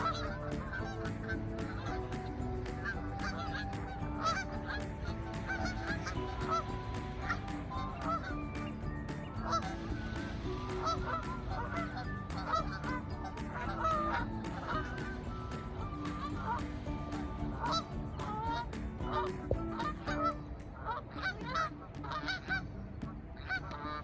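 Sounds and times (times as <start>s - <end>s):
many birds calling: 0.0s - 22.3s.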